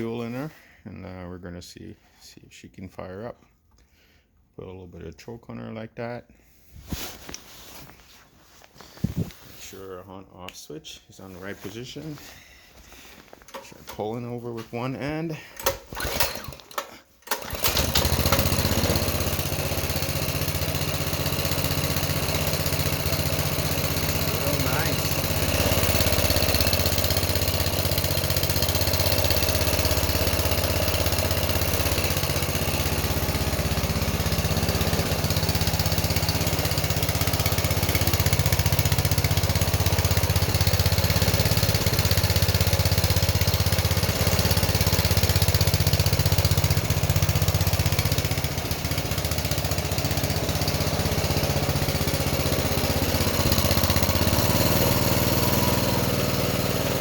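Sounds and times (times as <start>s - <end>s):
small engine idling: 15.4s - 57.0s.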